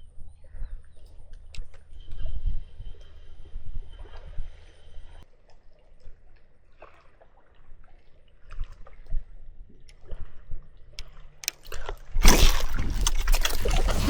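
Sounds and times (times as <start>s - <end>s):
water splashing and sloshing: 5.5s - 14.0s.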